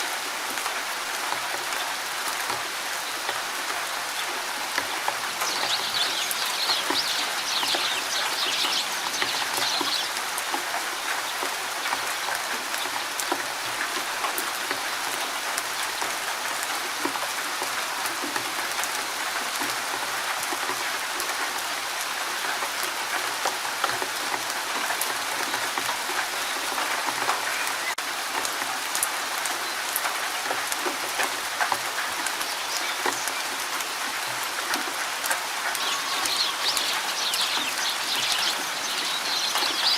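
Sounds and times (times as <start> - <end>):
rain patter in forest: 0.0 - 39.9
bird twittering: 5.4 - 10.2, 35.8 - 39.9.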